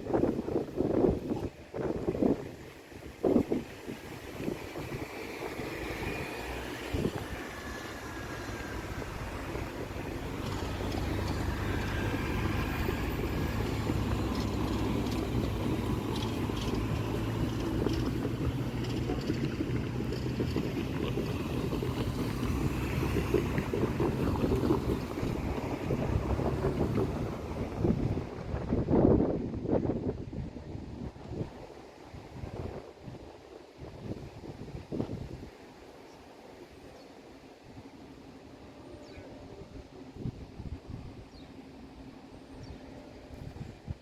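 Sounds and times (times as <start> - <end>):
diesel locomotive engine running: 4.1 - 34.8.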